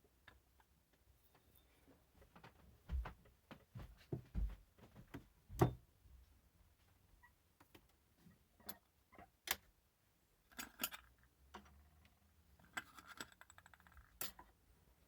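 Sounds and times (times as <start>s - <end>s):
metal parts clicking and clinking: 10.5s - 11.1s, 12.6s - 14.5s.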